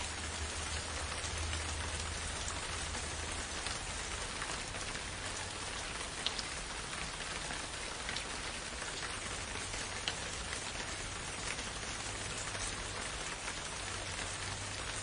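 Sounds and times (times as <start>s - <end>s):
raindrops ticking on leaves: 0.0s - 15.0s
steady rain hiss: 0.0s - 15.0s.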